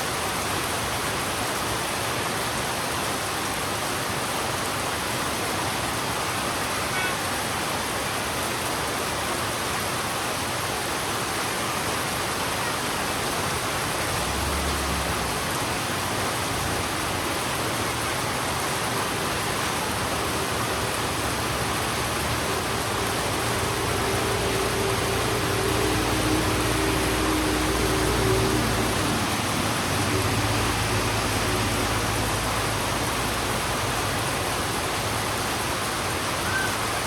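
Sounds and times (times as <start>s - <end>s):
heavy rain on a road: 0.0s - 37.0s
vehicle engine hum: 13.8s - 37.0s.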